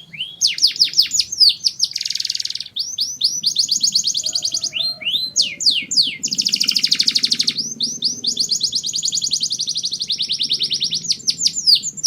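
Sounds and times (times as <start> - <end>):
canary singing: 0.0 - 12.0.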